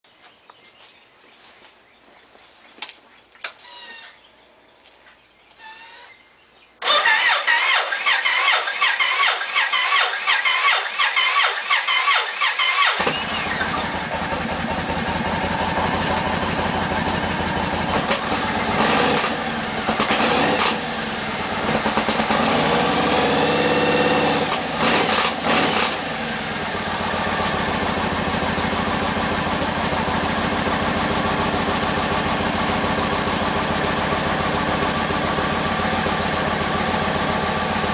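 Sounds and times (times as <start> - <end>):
motorcycle engine starting and revving: 6.8 - 37.9.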